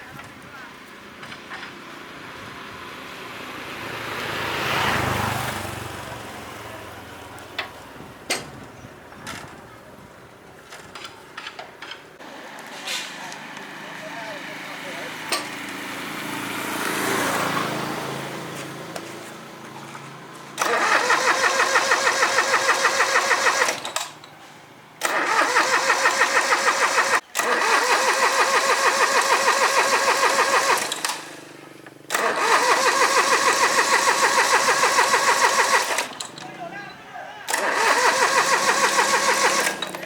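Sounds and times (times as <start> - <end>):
engine starter cranking: 20.5 - 24.4, 25.0 - 36.6, 37.5 - 40.0.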